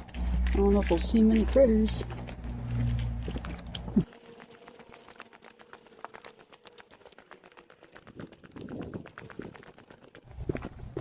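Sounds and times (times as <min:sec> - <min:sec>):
footsteps crunching: 0:00.0 - 0:09.6.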